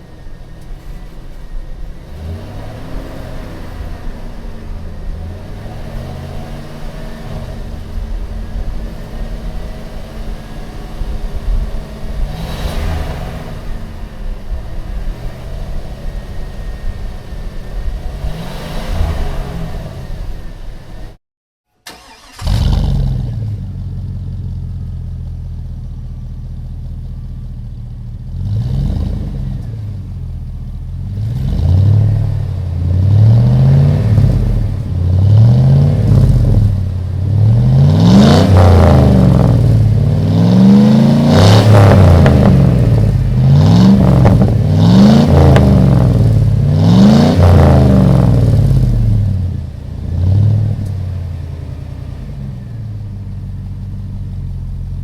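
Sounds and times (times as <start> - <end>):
car engine idling and revving: 0.0 - 21.2, 21.9 - 55.0.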